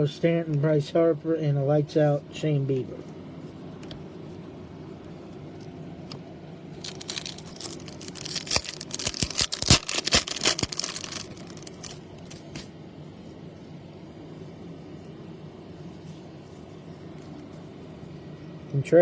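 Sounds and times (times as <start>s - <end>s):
foil wrapper tearing and crinkling: 6.8s - 12.7s.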